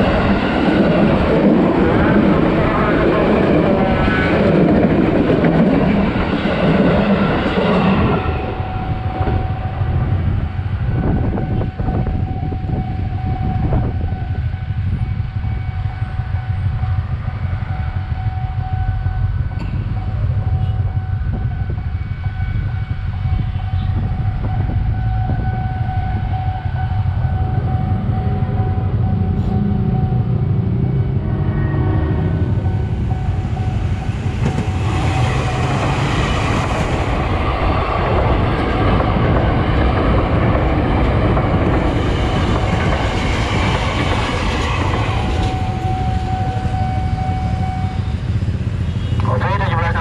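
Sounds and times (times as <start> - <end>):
electric train rumbling past: 0.0 - 50.0
level crossing alarm tone: 21.9 - 37.8, 44.6 - 48.2.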